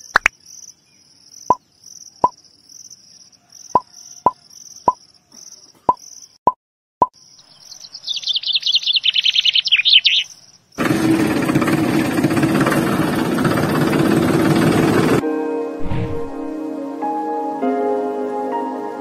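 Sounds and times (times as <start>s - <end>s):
birds chirping: 7.1s - 10.8s.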